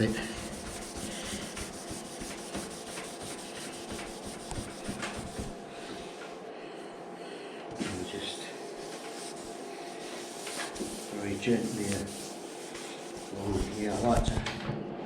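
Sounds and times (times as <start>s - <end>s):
sandpaper rubbing on steel: 0.0s - 5.5s, 8.1s - 14.1s.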